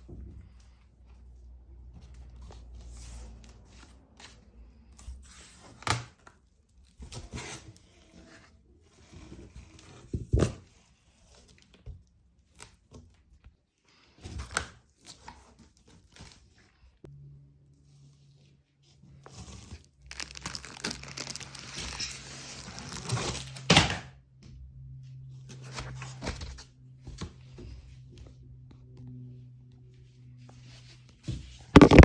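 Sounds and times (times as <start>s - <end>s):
rustling and scraping: 17.9s - 23.6s, 30.3s - 32.0s
knocks and thuds: 31.8s - 32.0s.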